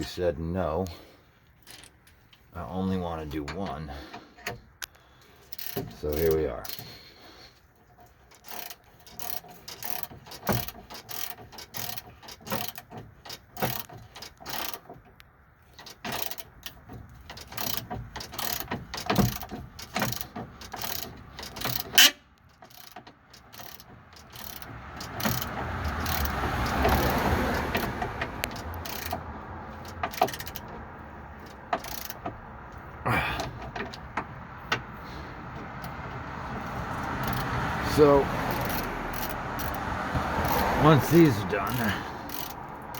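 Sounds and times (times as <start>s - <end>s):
socket ratchet clicking: 5.5s - 6.8s, 8.3s - 14.9s, 15.8s - 30.8s, 31.4s - 32.4s, 37.0s - 37.6s, 38.4s - 42.9s.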